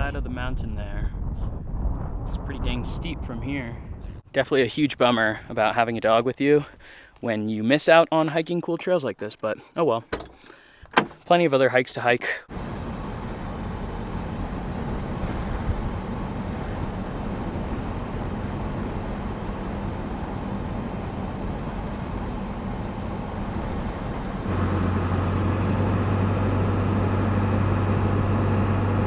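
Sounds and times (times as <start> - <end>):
truck engine and road noise: 10.0 - 11.4, 12.5 - 29.0.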